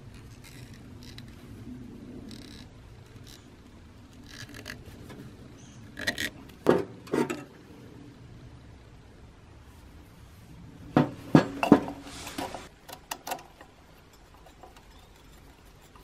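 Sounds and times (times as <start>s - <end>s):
faint rubbing and scraping: 0.0s - 7.6s, 9.6s - 12.8s, 13.9s - 16.0s
sharp metal knocks and clatters: 11.0s - 15.2s.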